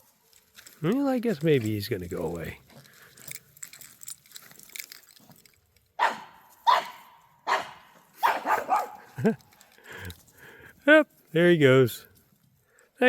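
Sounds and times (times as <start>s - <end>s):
dog barking: 6.0s - 9.1s.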